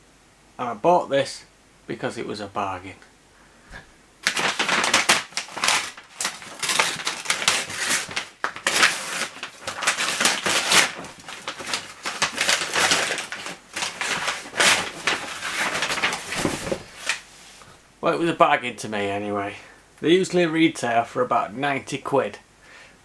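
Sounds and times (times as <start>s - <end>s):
packaging tearing and crinkling: 4.2s - 17.2s.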